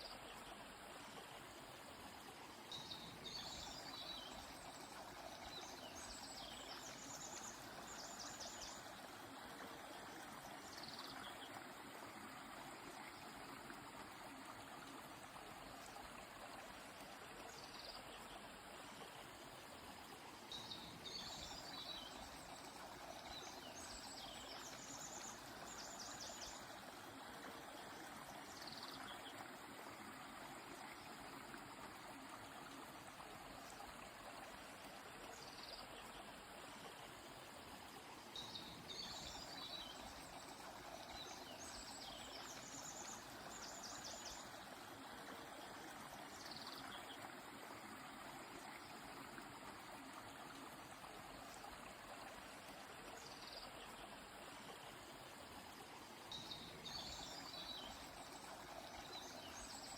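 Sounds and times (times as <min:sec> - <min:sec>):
river flowing: 0:00.0 - 0:59.9
small birds singing: 0:20.5 - 0:26.8, 0:38.4 - 0:44.6, 0:56.3 - 0:59.9.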